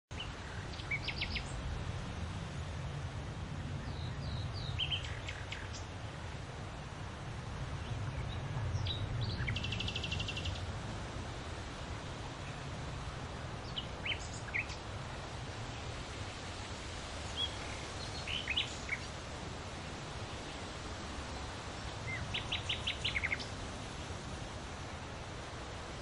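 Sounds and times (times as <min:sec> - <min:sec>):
birds chirping and trilling: 0:00.1 - 0:01.6, 0:03.8 - 0:05.9, 0:07.8 - 0:10.7, 0:13.6 - 0:14.8, 0:16.2 - 0:19.2, 0:22.0 - 0:23.6.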